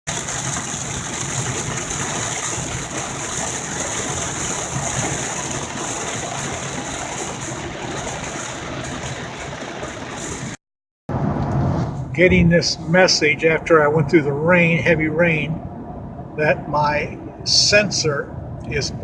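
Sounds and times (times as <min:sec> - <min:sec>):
heavy rain on a car: 0:00.1 - 0:10.6
tyres on wet road: 0:00.1 - 0:19.0.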